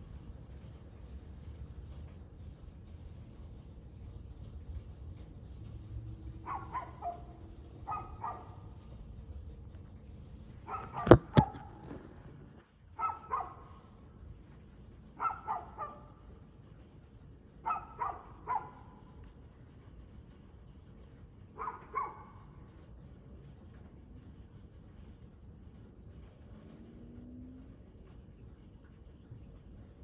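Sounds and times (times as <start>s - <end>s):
dog barking: 6.4s - 8.8s, 10.7s - 12.1s, 13.0s - 13.8s, 15.2s - 16.2s, 17.6s - 19.1s, 21.6s - 22.5s
sharp knocks: 10.8s - 12.4s.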